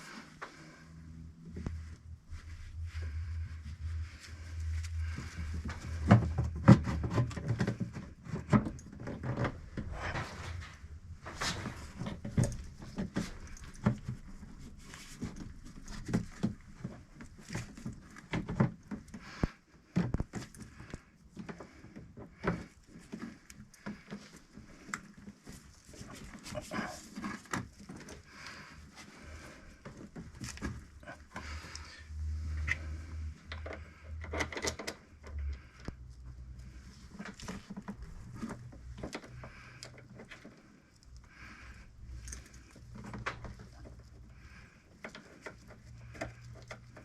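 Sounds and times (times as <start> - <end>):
low hum: 0.0 - 7.0.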